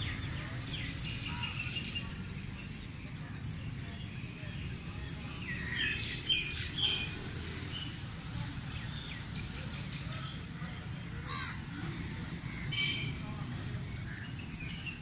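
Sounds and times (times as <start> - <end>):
birds calling: 8.7 - 15.0.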